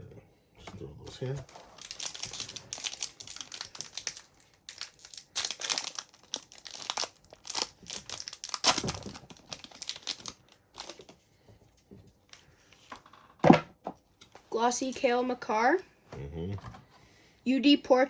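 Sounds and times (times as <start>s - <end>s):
wrapper crinkling: 1.4s - 11.2s.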